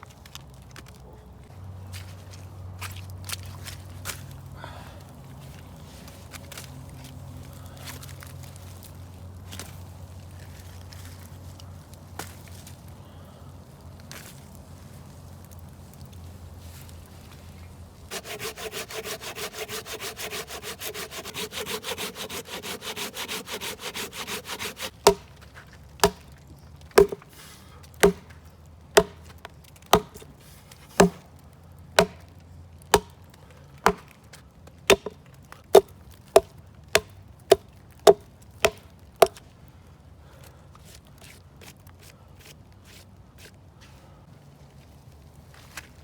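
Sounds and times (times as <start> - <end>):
hand saw cutting wood: 18.1 - 25.4, 26.0 - 26.2, 27.0 - 28.3, 29.0 - 29.3, 29.9 - 30.3, 30.9 - 31.2, 32.0 - 32.2, 32.9 - 33.1, 33.8 - 34.1, 34.9 - 35.2, 35.8 - 39.4
wood being chopped: 18.1 - 31.4, 32.0 - 32.3, 32.9 - 34.2, 34.9 - 39.4.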